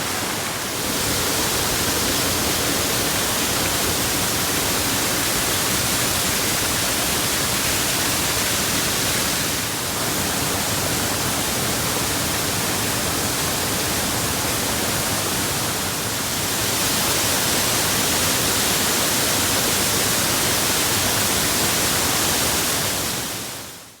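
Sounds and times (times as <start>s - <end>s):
waterfall rushing: 0.0s - 11.2s.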